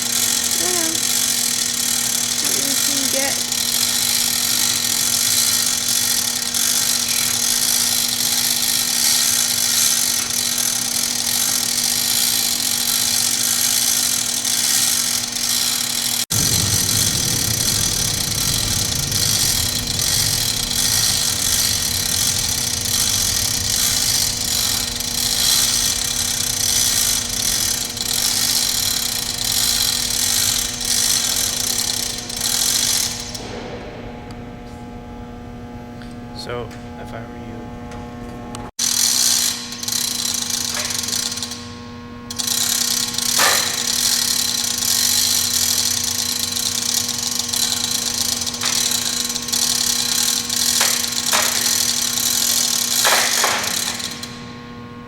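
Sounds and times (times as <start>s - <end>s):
hoist motor whirring: 0.0s - 34.9s, 37.9s - 54.7s
low electrical hum: 16.3s - 38.7s.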